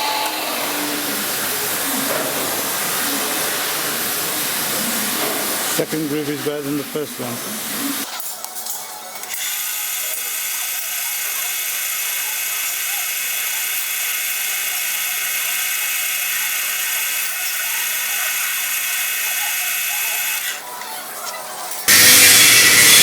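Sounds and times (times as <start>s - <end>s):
lathe motor whining: 0.0s - 5.8s, 9.4s - 20.6s, 21.9s - 23.0s.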